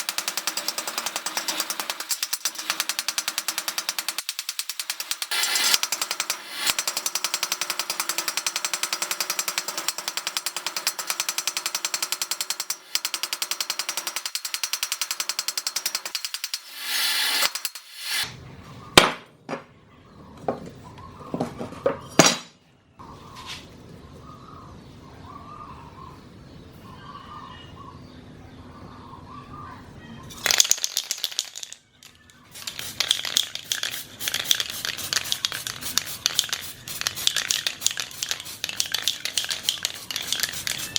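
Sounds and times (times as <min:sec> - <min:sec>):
power tool hammering: 0:00.0 - 0:18.2.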